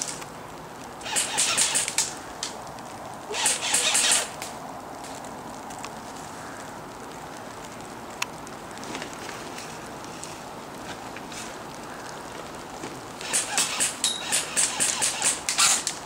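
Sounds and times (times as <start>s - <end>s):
automatic airsoft gun fire: 1.1s - 1.9s, 13.2s - 15.8s.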